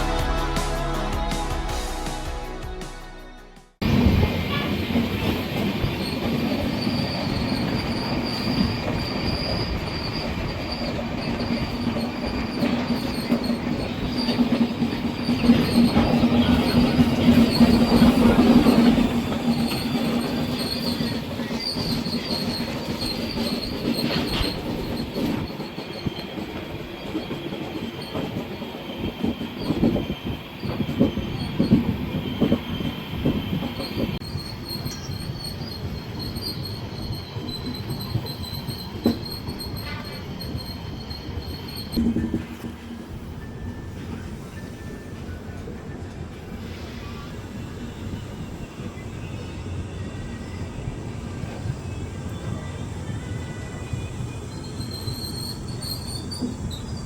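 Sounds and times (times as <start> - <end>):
train wheels rumbling on rails: 3.8 - 57.0
rail-joint clatter: 4.5 - 42.9, 54.7 - 57.0
wheel squeal: 5.9 - 42.0, 51.8 - 57.0.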